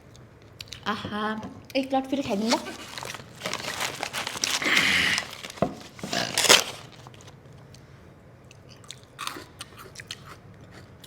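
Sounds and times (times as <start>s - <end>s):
person chewing crunchy food: 2.6s - 7.4s, 8.5s - 11.0s.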